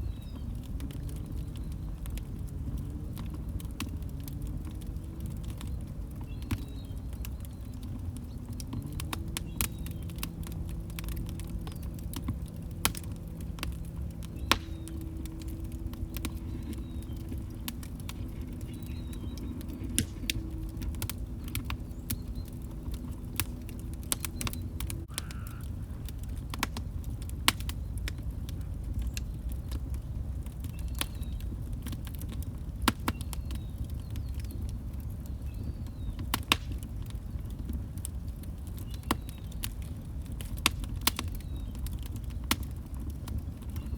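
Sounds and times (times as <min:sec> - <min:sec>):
low steady hum: 0:00.0 - 0:43.9
wood fire crackling and popping: 0:00.0 - 0:43.9.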